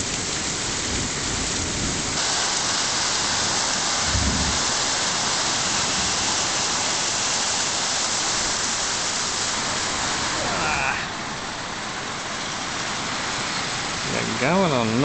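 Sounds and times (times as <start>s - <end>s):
torrential rain pouring: 0.0s - 15.0s
low thump: 4.1s - 4.6s.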